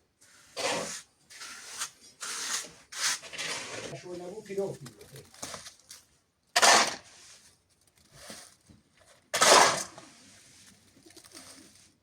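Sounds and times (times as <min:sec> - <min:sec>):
tool scraping wet cement: 0:00.5 - 0:04.0, 0:06.6 - 0:07.4, 0:09.4 - 0:10.2.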